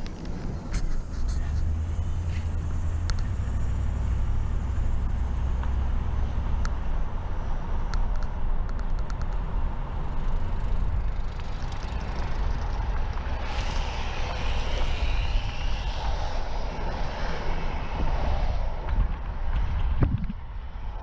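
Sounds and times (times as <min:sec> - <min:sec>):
car road and engine rumble: 0:00.0 - 0:21.0
light ticks: 0:03.0 - 0:03.3.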